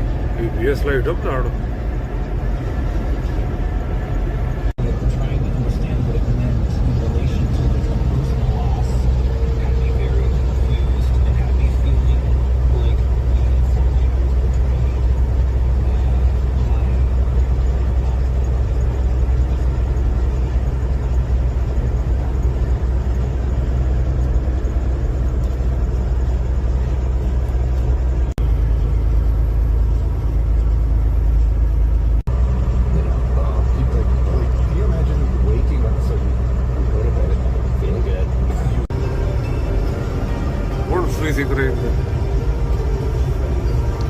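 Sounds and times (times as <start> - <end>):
car engine and road noise: 0.0 - 44.0.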